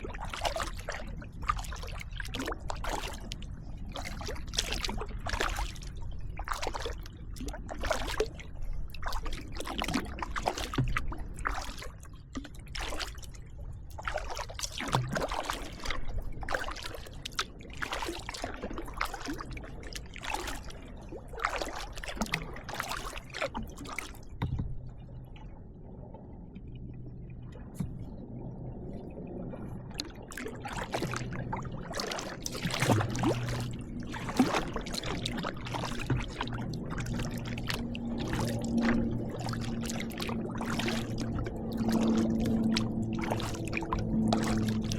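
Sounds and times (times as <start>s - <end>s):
kayak paddle splashing: 0.0s - 25.2s, 26.9s - 44.9s
water dripping off paddle: 30.0s - 44.9s.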